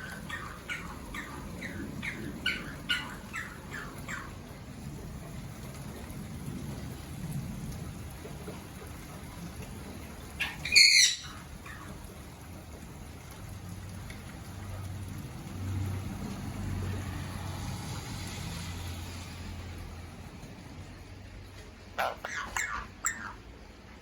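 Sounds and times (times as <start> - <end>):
parrot squawk: 0.0 - 4.3, 10.4 - 11.9, 22.0 - 23.4
rain: 0.0 - 24.0.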